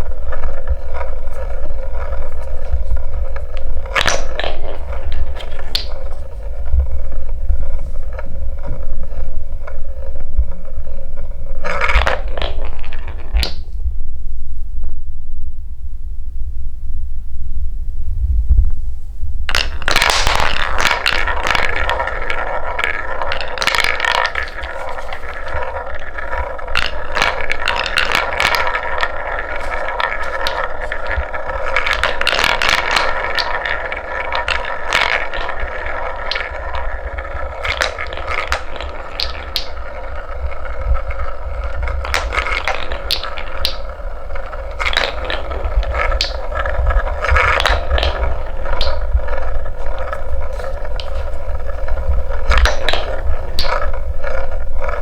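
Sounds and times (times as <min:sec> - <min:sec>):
wooden balls rolling on track: 0:00.0 - 0:13.7, 0:19.5 - 0:55.0
low rumble: 0:13.6 - 0:19.6.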